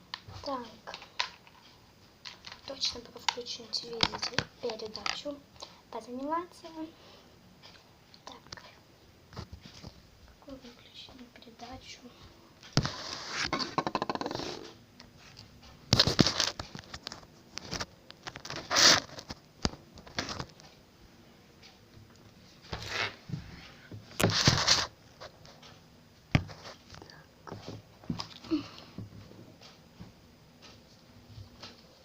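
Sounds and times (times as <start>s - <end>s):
rustling and scraping: 9.3s - 10.7s, 12.6s - 20.8s, 21.6s - 28.4s.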